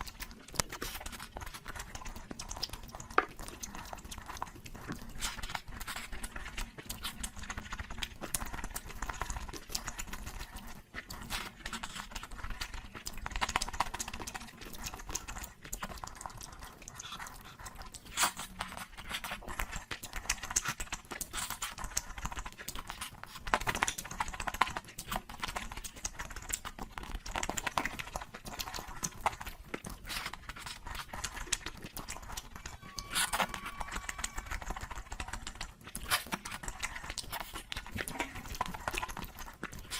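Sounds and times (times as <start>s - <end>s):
wet chewing and lip smacking: 0.0s - 39.9s.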